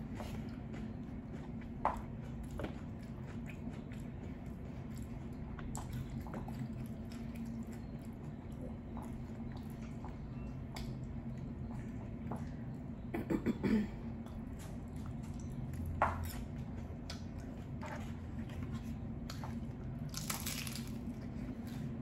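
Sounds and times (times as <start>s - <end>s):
steady low hum: 0.0s - 22.0s
crunchy chewing: 14.2s - 22.0s.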